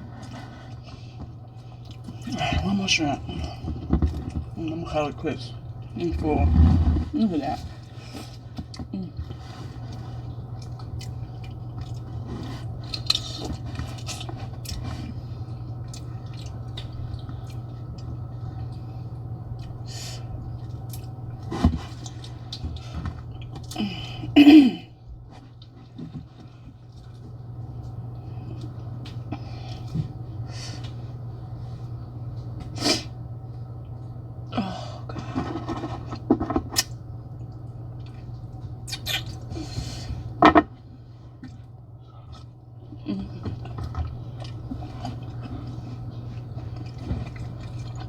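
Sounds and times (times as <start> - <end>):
person chewing food: 0.0 - 2.3, 7.8 - 19.8, 20.4 - 24.0, 41.4 - 48.0
steady low hum: 0.0 - 48.0.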